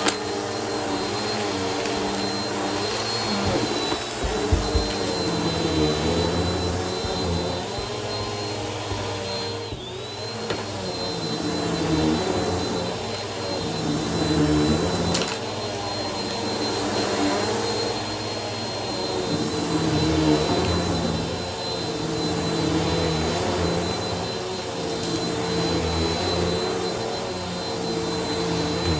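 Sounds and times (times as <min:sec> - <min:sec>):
vacuum cleaner motor whine: 0:00.0 - 0:28.9.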